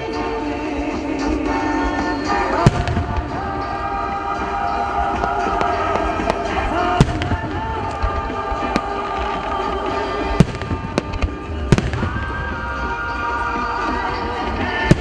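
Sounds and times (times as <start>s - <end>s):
music from loudspeakers: 0.0s - 15.0s.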